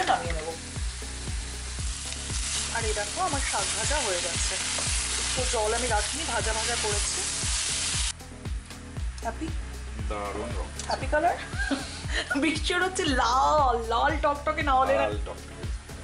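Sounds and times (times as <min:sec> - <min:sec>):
greens sizzling in a pan: 0:00.0 - 0:08.2.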